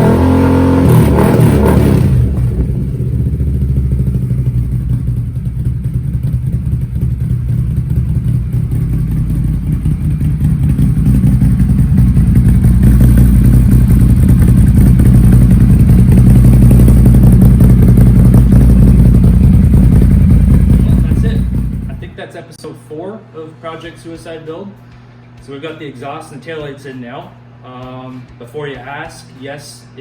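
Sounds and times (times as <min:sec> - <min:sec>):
engine running low note: 0:00.0 - 0:22.2.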